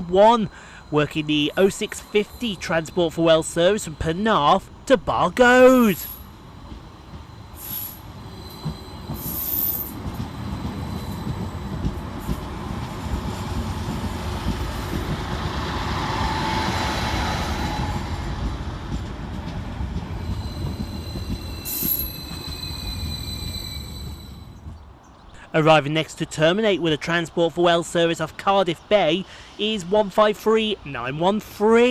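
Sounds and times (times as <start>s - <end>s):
train running into platform: 0.0s - 25.0s
brief wheel squeal: 7.6s - 10.0s, 10.6s - 11.3s, 20.2s - 24.6s.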